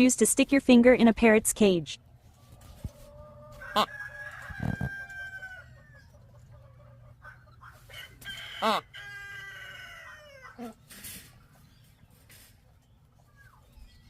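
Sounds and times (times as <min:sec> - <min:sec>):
bird crowing: 0:03.0 - 0:10.7.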